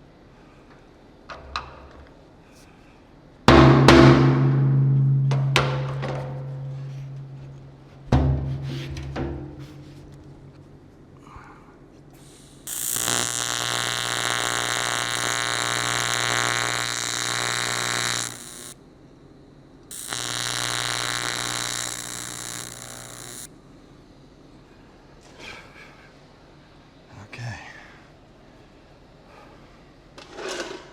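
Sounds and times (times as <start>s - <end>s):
welding arc buzzing: 12.2s - 18.8s, 19.9s - 23.5s.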